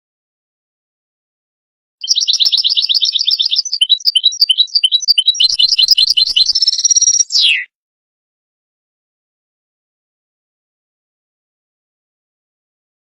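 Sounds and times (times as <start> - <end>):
goldfinch twittering song: 2.0 - 7.7.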